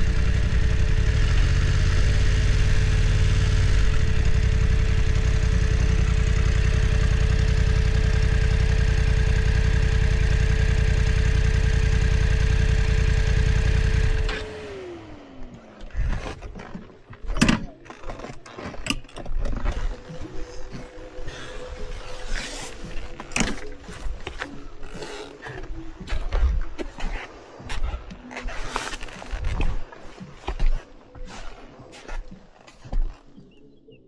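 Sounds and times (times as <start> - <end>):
motorcycle engine idling: 0.0 - 16.3.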